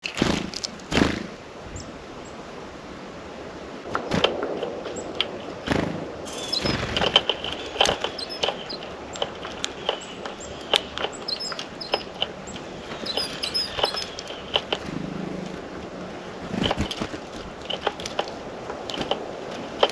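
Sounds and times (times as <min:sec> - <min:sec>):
short high bird chirps: 0:06.3 - 0:09.2, 0:09.8 - 0:14.4
beaks tapping on bird feeder: 0:06.7 - 0:14.9.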